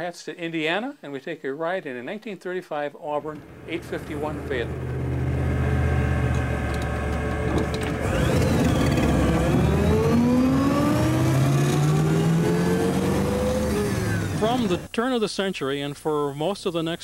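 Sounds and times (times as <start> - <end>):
car engine accelerating: 3.4 - 14.9.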